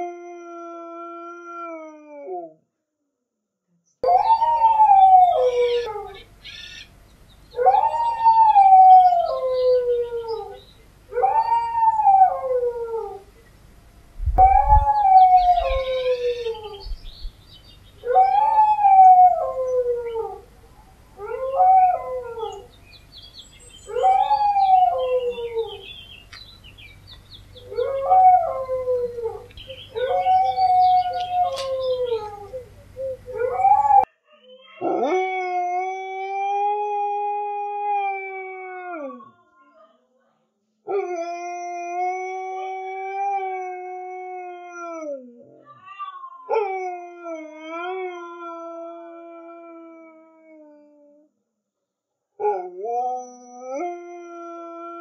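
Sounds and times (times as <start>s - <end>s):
dog howling: 27.6s - 39.3s.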